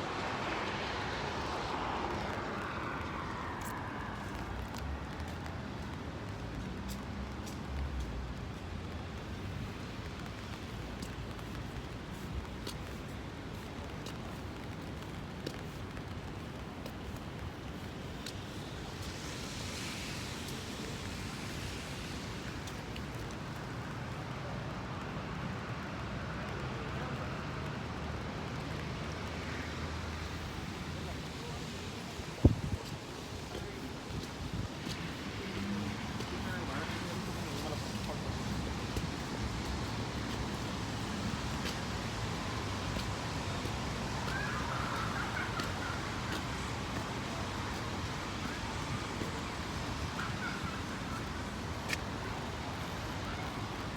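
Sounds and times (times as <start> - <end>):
rain: 0.0 - 53.9
traffic hissing on wet road: 0.0 - 53.9
wind: 0.0 - 53.9
strong wind: 30.6 - 53.9.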